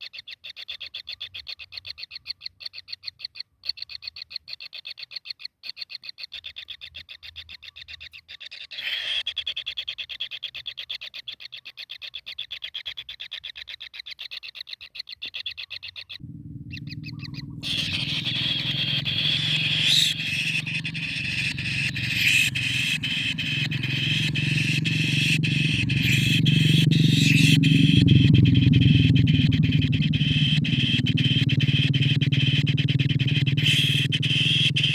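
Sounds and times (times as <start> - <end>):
kingfisher chattering calls: 16.2 - 34.9
low rumble with hiss and clicks: 16.2 - 34.9.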